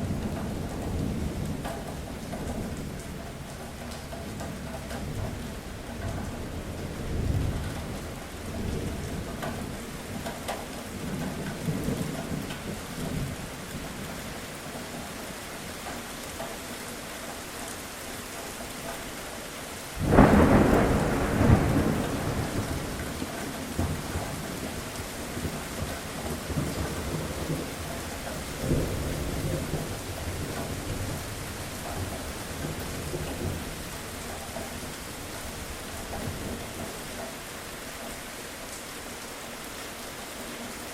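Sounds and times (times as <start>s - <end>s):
steady rain: 0.0s - 40.9s
loud thunderclap: 20.0s - 24.4s
rolling thunder: 20.0s - 27.9s.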